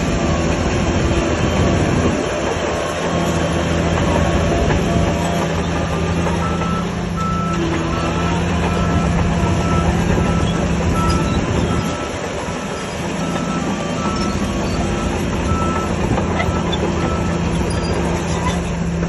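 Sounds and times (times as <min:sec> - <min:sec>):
diesel engine clattering rumble: 0:00.0 - 0:19.0
reversing alarm beeps: 0:06.4 - 0:17.5.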